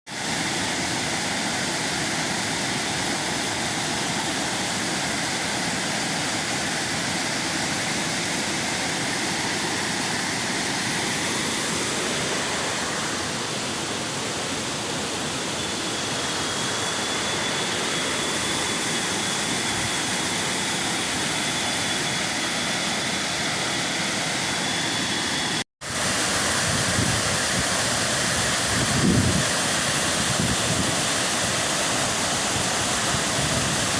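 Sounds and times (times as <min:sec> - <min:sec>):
waterfall rushing and splashing: 0:00.1 - 0:15.5, 0:22.4 - 0:33.9.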